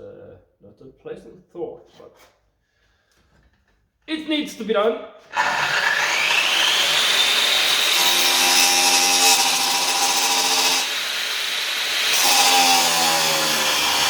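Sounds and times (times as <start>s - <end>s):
angle grinder cutting iron: 5.3s - 14.0s.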